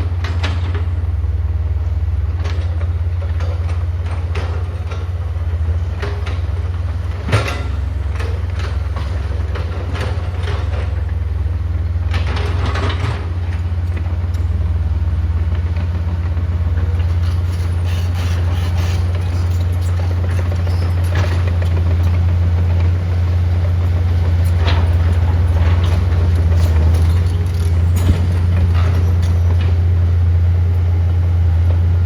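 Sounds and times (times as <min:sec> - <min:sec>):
diesel engine running: 0:00.0 - 0:32.0
metallic clanks: 0:24.2 - 0:29.8.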